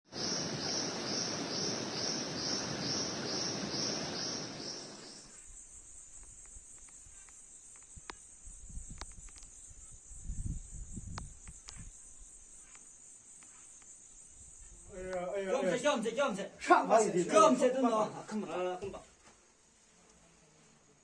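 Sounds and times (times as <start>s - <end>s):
high-pitched insect buzz: 0.1s - 15.0s
insects chirping in rhythmic pulse: 0.1s - 19.7s
faint clicks: 6.2s - 8.2s, 8.9s - 9.6s.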